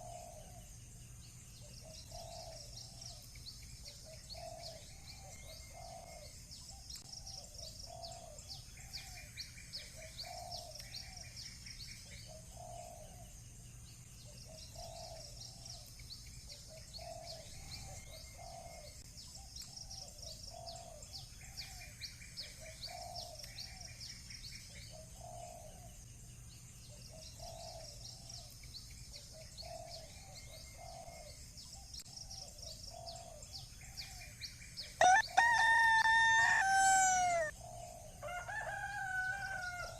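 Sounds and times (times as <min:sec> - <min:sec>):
small birds chirping: 0:00.0 - 0:39.9
dove cooing: 0:04.0 - 0:06.3, 0:35.1 - 0:37.8.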